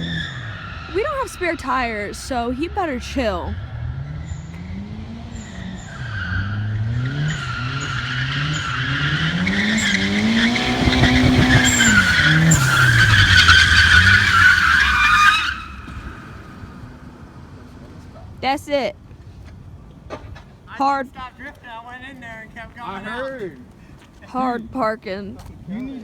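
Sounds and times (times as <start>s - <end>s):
car engine revving: 3.5s - 17.7s
tyres squealing: 7.3s - 16.5s.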